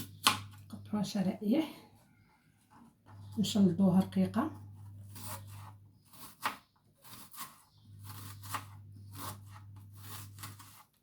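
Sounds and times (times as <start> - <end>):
knife slicing onion: 0.0 - 0.6, 4.8 - 11.0.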